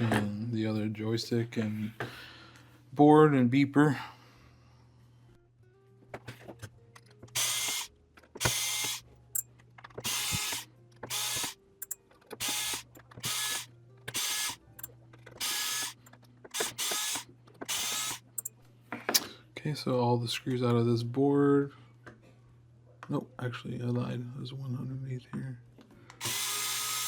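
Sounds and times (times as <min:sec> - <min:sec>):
small clicks: 0:06.9 - 0:18.5
electric screwdriver whirring: 0:07.3 - 0:09.0, 0:10.0 - 0:14.6, 0:15.4 - 0:18.5, 0:26.2 - 0:27.0.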